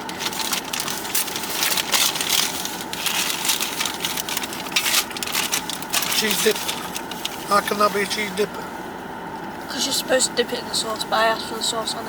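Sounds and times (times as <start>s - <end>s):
paper wrappers crinkling: 0.0s - 8.3s.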